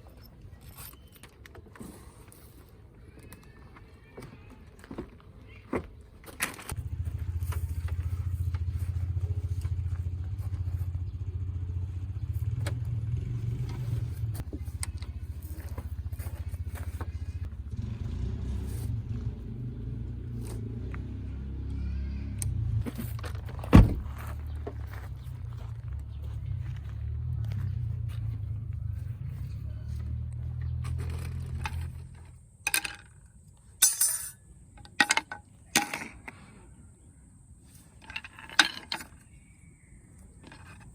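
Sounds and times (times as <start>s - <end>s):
car engine idling: 6.8s - 18.3s
hard objects clinking: 33.8s - 36.2s.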